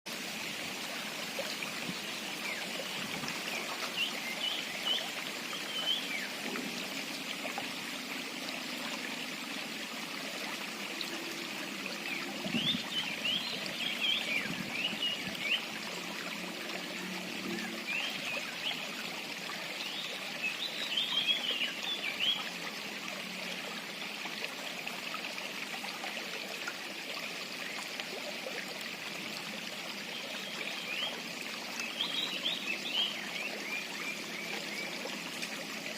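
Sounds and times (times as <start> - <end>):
small songbird chirping: 31.8 - 35.1.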